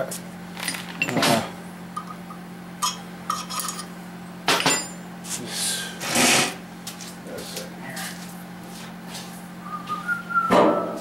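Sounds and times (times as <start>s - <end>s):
metal tools clinking: 0.6s - 1.4s, 2.0s - 3.9s, 4.5s - 5.0s.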